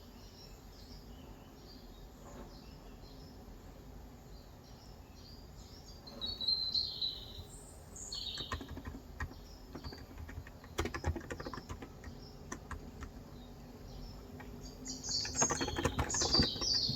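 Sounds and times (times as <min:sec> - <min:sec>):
birds chirping: 0:04.6 - 0:16.9
typing on keyboard: 0:08.2 - 0:13.4, 0:14.2 - 0:16.9.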